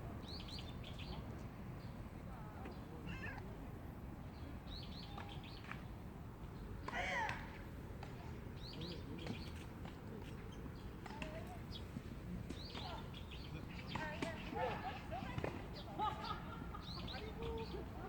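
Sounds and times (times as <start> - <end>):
small birds chirping: 15.7 - 18.0.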